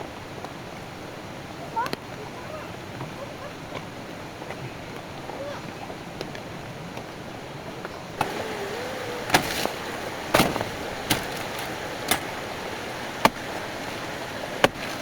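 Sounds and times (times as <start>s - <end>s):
steady background hiss: 0.0s - 15.0s
sharp irregular knocks: 9.3s - 12.4s.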